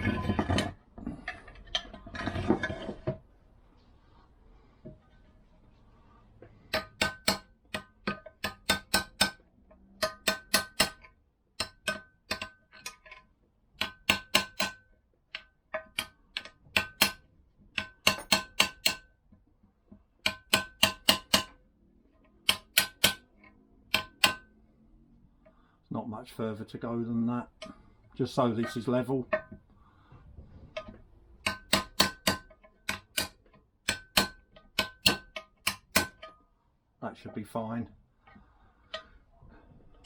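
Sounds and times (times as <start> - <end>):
hammer tapping on metal: 6.7 - 9.4, 10.0 - 11.0, 11.6 - 12.6, 13.8 - 17.2, 17.8 - 19.1, 20.2 - 21.6, 22.4 - 23.2, 23.9 - 24.5, 30.8 - 36.4.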